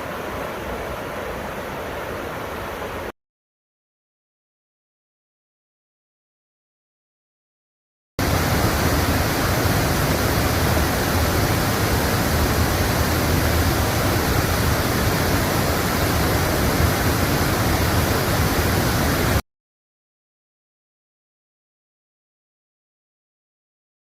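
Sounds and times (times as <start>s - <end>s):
waterfall rushing: 8.2s - 19.4s.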